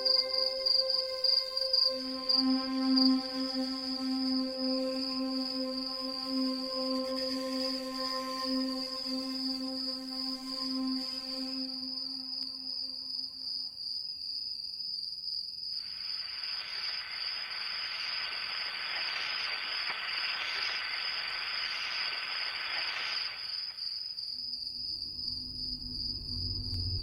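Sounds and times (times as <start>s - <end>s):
crickets trilling: 0.0s - 27.0s
rushing hiss: 15.8s - 23.8s.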